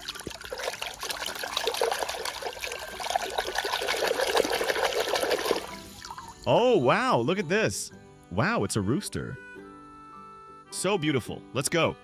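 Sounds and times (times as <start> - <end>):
water trickling and splashing: 0.0 - 6.5.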